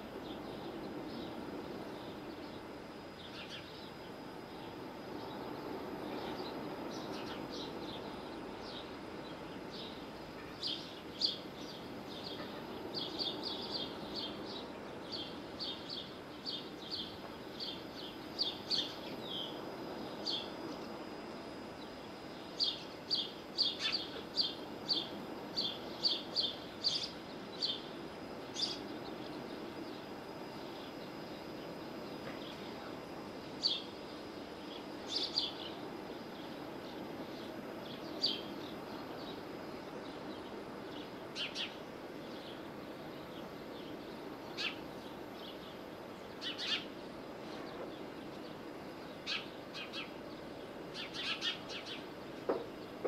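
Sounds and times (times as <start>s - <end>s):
low rushing background noise: 0.0s - 53.0s
small bird chirping: 6.1s - 19.6s, 22.6s - 27.9s, 28.5s - 29.5s, 43.8s - 52.2s.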